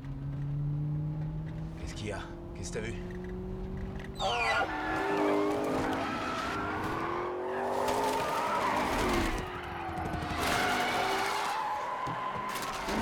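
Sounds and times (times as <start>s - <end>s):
tyres skidding: 0.0s - 13.0s.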